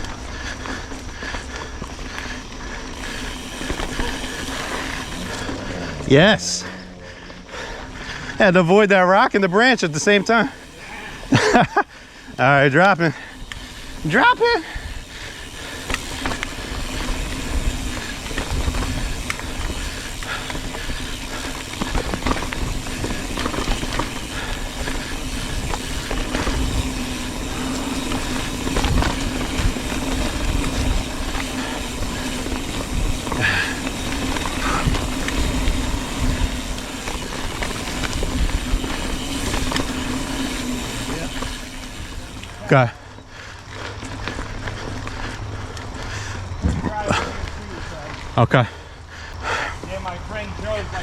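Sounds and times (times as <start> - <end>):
bike rattles and knocks: 0.0 - 48.4
bike tyres on dirt: 0.0 - 51.0
wind rumbling on microphone: 14.7 - 42.5.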